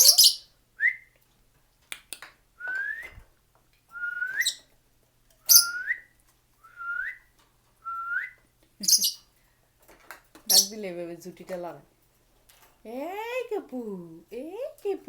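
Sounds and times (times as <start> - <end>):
bird shrill high calls: 0.0 - 0.5, 5.5 - 5.9.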